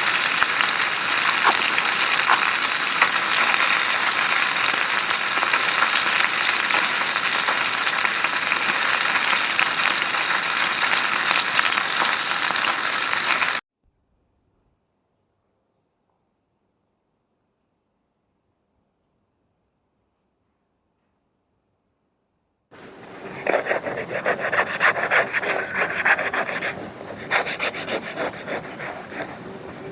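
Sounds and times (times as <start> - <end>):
crickets hissing: 0.0 - 13.6, 22.8 - 29.9
food sizzling over a campfire: 0.0 - 13.6, 22.8 - 29.9.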